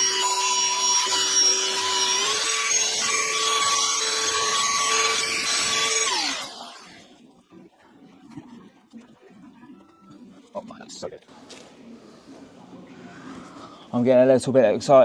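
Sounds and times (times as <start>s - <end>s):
polisher motor whine: 0.0s - 7.0s.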